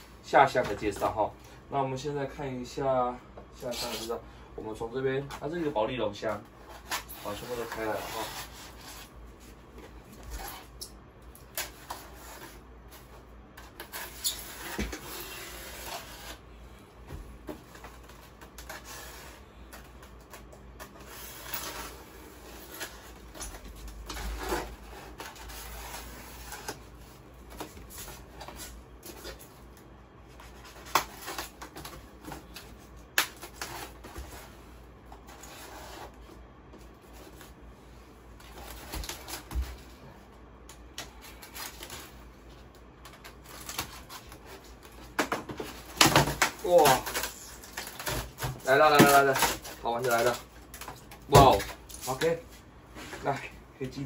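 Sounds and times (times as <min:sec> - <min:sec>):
packaging rustling and clicking: 0:43.0 - 0:52.4.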